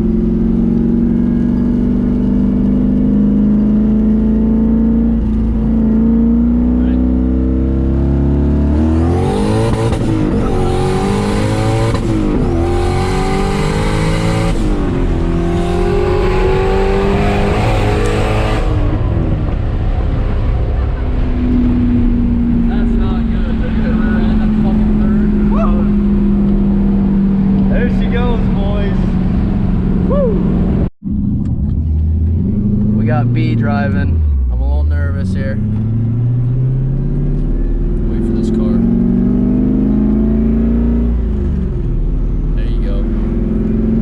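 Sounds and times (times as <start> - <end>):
turbocharged engine revving: 0.0 - 44.0.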